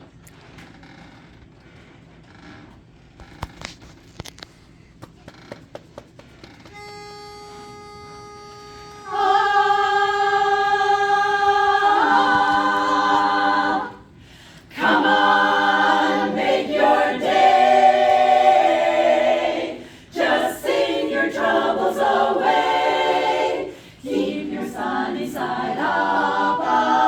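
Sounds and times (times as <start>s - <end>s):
a cappella group singing: 9.0s - 27.0s.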